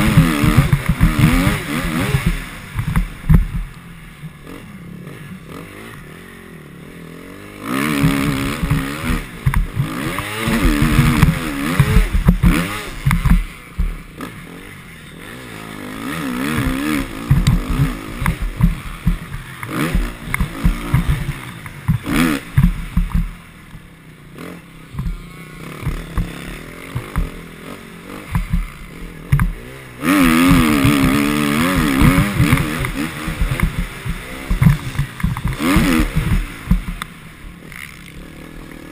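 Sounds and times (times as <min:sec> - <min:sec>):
motocross bike engine revving: 0:00.0 - 0:38.9
short low thuds: 0:09.4 - 0:14.1, 0:16.6 - 0:23.4, 0:25.8 - 0:27.4, 0:28.3 - 0:29.6, 0:30.5 - 0:37.6.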